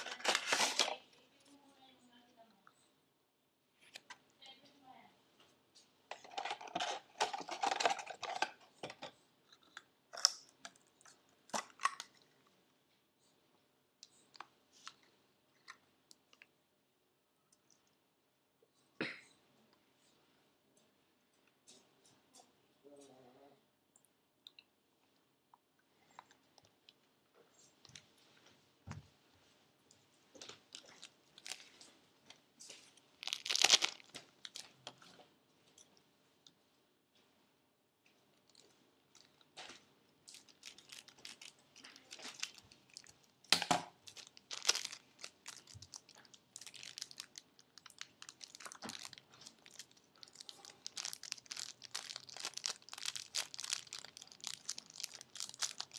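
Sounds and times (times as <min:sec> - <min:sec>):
plastic packaging crinkling: 0:00.0 - 0:01.2, 0:06.1 - 0:09.1, 0:30.5 - 0:31.8, 0:33.2 - 0:34.9, 0:40.3 - 0:55.9.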